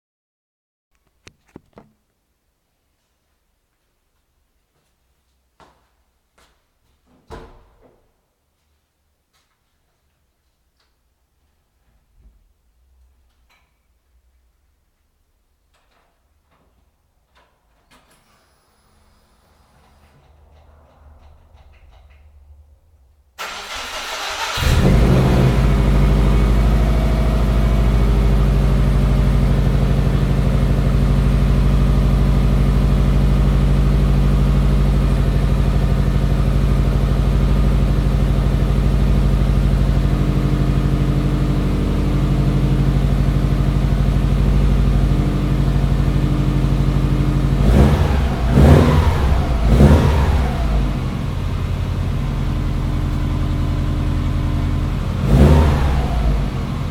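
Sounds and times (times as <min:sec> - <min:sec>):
car engine cranking: 0:23.4 - 0:45.1, 0:47.4 - 0:52.1
car engine idling: 0:23.4 - 0:56.9
car engine revving: 0:23.4 - 0:56.9.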